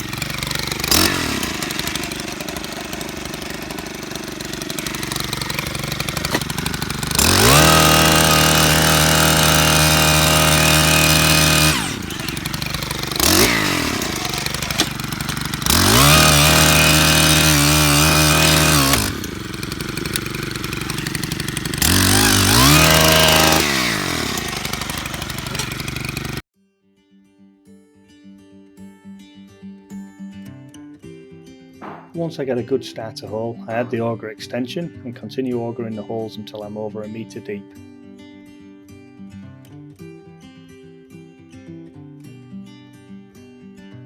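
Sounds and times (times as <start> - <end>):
post-hole auger engine revving: 0.0 - 26.4.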